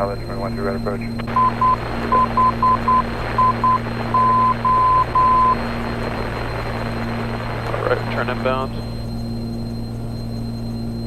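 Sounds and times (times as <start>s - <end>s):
piston aircraft engines droning: 0.0s - 11.0s
morse code tone: 1.3s - 9.0s.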